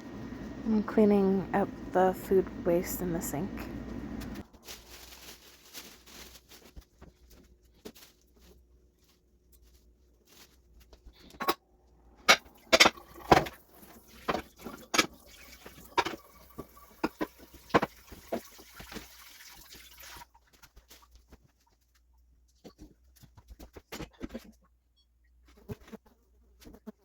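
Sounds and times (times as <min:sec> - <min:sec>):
hard items clattering in sink: 0:12.2 - 0:20.6.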